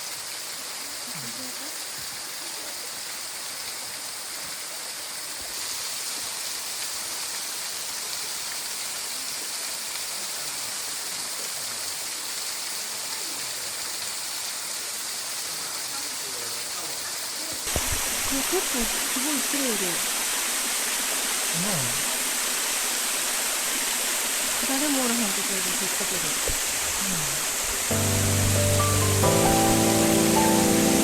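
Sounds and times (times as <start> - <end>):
waterfall rushing: 17.6 - 31.0.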